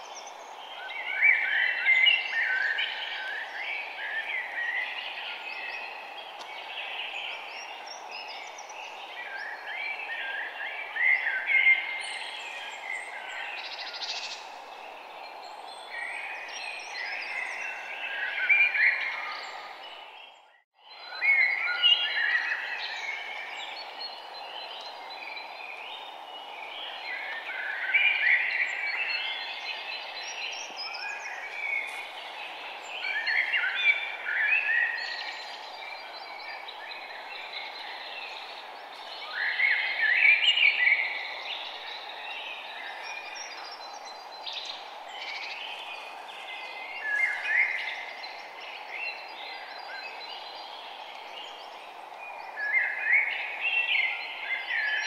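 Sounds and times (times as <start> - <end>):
birds singing: 0.0 - 55.0
steady background hiss: 21.2 - 55.0.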